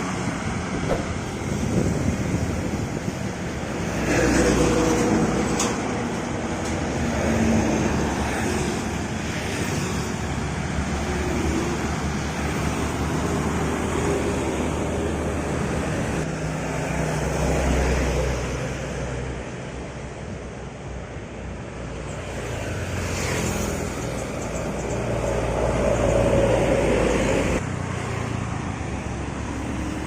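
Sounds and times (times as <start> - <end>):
tyre and wind noise: 0.0 - 8.6
vehicle engines at speed: 0.0 - 30.0.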